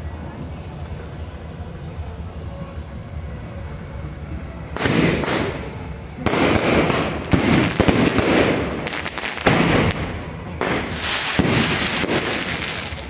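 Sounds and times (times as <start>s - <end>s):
fireworks bursting and crackling: 4.7s - 13.0s.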